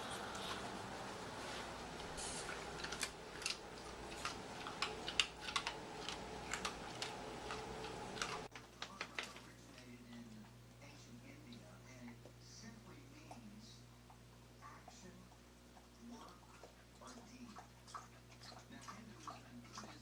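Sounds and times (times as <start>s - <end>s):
low room hum: 0.0s - 20.0s
dog claws clicking on floor: 2.8s - 9.9s.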